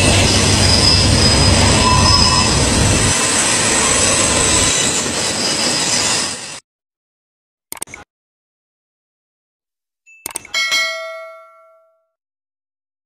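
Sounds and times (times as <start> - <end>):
freight cars rumbling: 0.0 - 6.6
high wheel squeal: 0.0 - 6.6.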